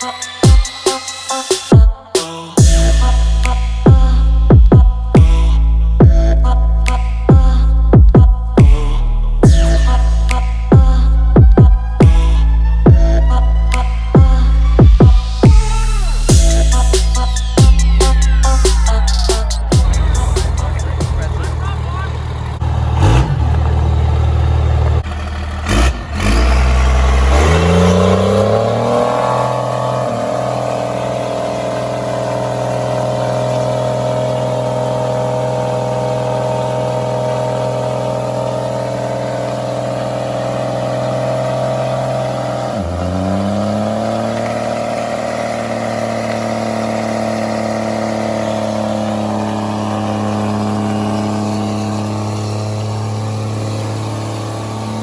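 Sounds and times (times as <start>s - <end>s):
truck engine revving: 0.0s - 55.0s
loud low rumble: 2.6s - 28.4s.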